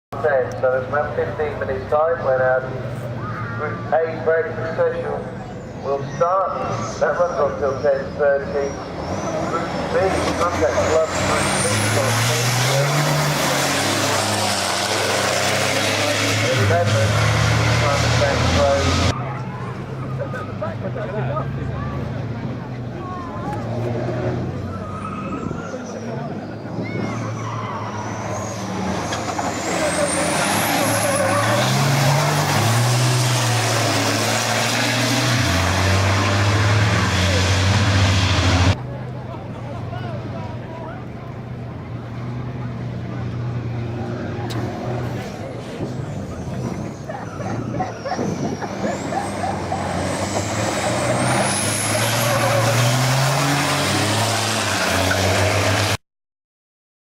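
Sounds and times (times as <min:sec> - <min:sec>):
racing truck engines running hard: 0:00.1 - 0:56.0
high turbo whine: 0:24.5 - 0:38.8.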